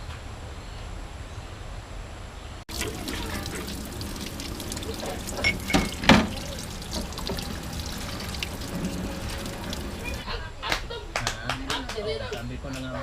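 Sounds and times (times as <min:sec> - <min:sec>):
water trickling: 0:02.7 - 0:10.2.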